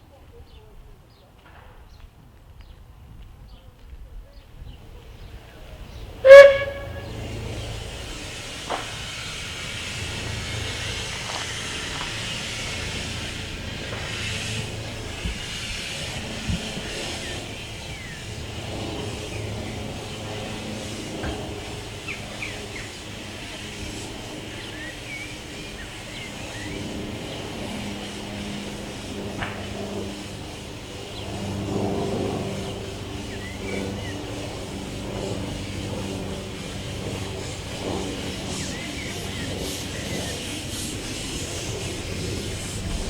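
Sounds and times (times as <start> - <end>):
low mechanical hum: 4.7 - 43.0
steam hissing: 5.9 - 31.2, 32.4 - 43.0
steam locomotive whistle: 6.2 - 12.6.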